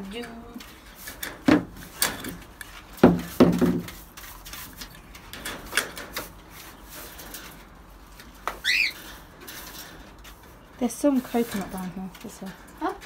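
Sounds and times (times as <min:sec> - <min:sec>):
light clicks and scrapes: 0:00.0 - 0:13.0
loud knocks: 0:03.0 - 0:03.9
pet bird squawk: 0:08.6 - 0:09.0.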